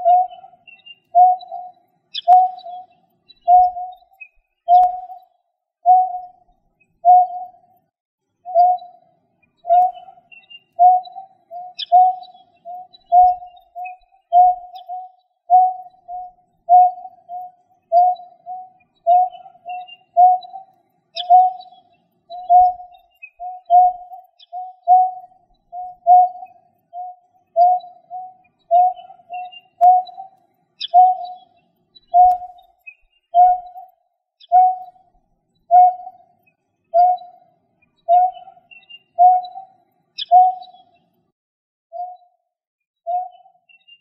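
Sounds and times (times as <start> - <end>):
bird calling low note: 0.0 - 2.9, 10.8 - 31.4, 38.1 - 40.7
faint high bird chirps: 0.0 - 41.2, 41.9 - 44.0.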